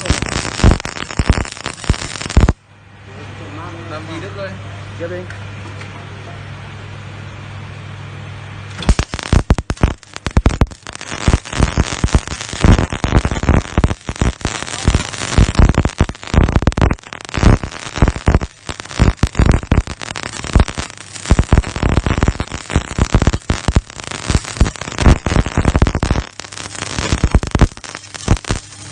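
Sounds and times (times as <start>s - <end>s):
welder humming: 0.0s - 2.6s, 8.7s - 28.9s
welding arc crackling and spitting: 0.0s - 2.6s, 8.7s - 28.9s.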